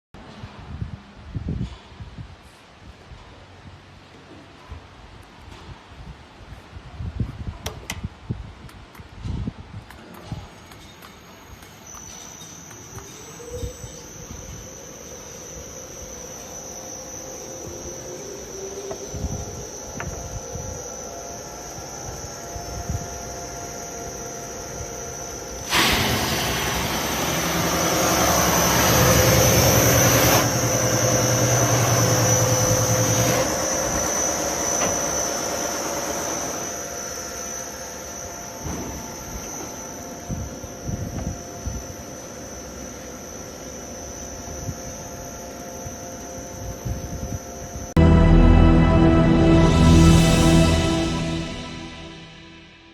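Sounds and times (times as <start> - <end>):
sanding machine motor whine: 11.2 - 40.7.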